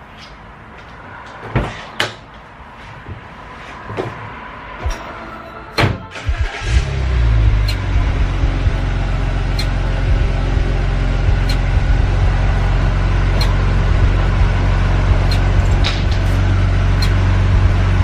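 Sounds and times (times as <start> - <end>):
motor humming: 6.1 - 18.0.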